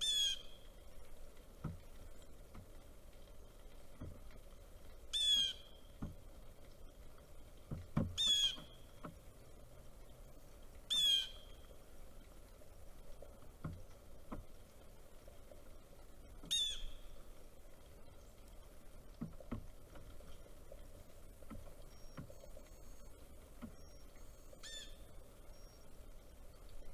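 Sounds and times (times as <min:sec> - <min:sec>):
bird calling loudly: 0:00.0 - 0:00.5, 0:05.1 - 0:05.8, 0:08.2 - 0:08.8, 0:10.9 - 0:11.4, 0:16.5 - 0:17.0, 0:24.6 - 0:25.1
soft low knocks: 0:01.4 - 0:10.6, 0:18.4 - 0:24.3.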